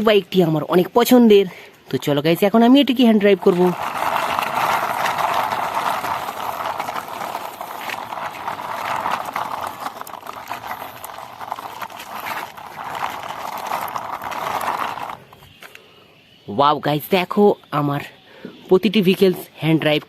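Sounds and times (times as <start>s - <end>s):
plastic wheels scraping along wall: 2.6s - 15.8s.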